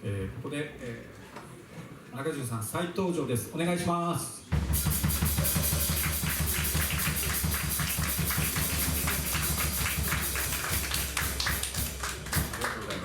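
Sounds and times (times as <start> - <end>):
live band music fast beat: 4.5 - 12.8.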